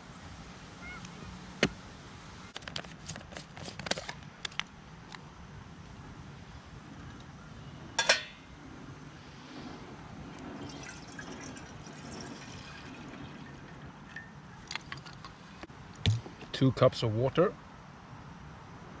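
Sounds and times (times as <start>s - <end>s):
water pouring into a pot: 10.6s - 15.6s.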